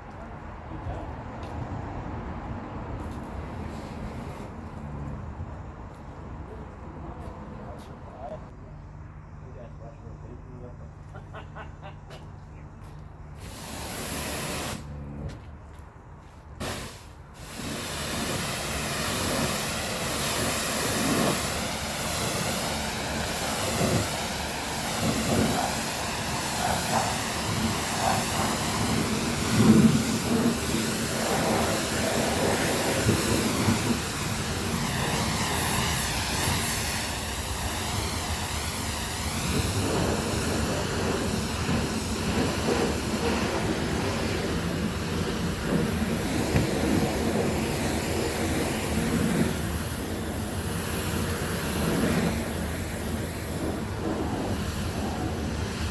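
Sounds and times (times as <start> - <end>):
pressure washer spraying water: 3.0 - 5.1, 13.3 - 15.1, 16.6 - 55.9.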